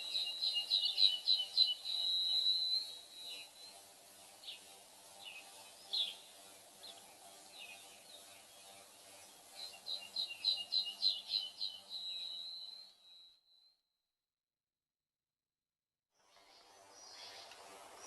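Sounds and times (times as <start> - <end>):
songbird chirping and singing: 0.0 - 13.6, 16.3 - 18.0.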